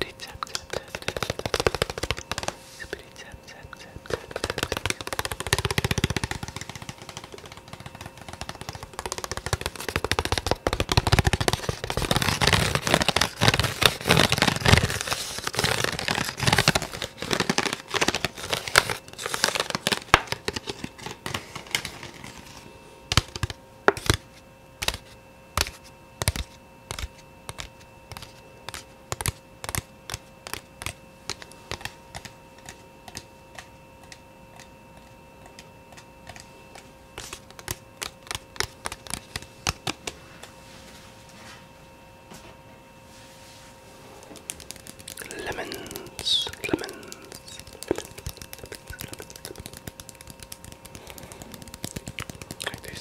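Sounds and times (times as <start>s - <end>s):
fast tapping: 0.4s - 2.6s, 4.1s - 15.0s, 37.2s - 40.0s, 44.4s - 53.0s.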